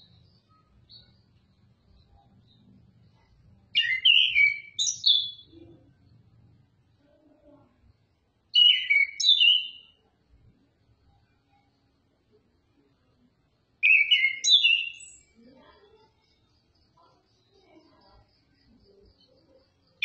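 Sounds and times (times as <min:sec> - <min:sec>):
bird singing whistled notes: 0:00.0 - 0:02.7, 0:03.7 - 0:05.8, 0:08.5 - 0:10.0, 0:13.8 - 0:15.4.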